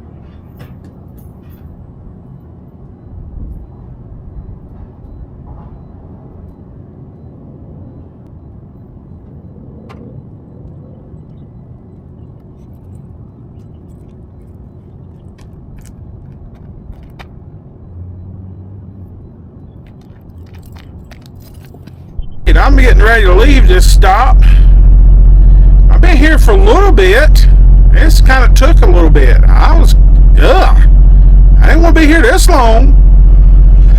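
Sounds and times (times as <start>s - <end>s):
truck diesel engine rumbling: 22.2s - 33.9s.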